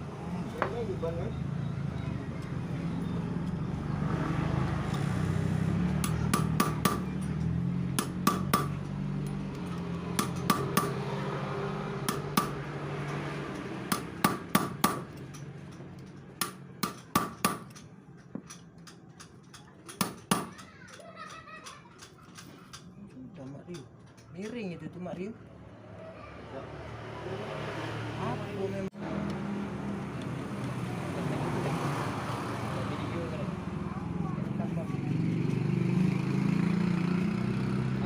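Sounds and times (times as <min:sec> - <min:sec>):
hammer striking metal: 0:06.0 - 0:09.0, 0:10.1 - 0:11.2, 0:12.0 - 0:21.0.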